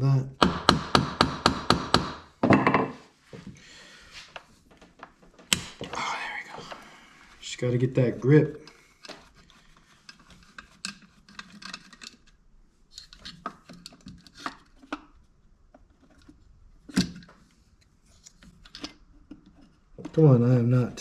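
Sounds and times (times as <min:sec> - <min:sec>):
loud knock: 0:00.4 - 0:03.0.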